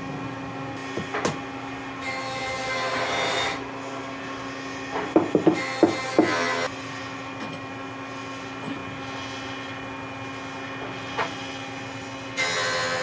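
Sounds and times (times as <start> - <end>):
power tool motor running: 2.0 - 3.6, 5.2 - 6.8, 12.4 - 13.0.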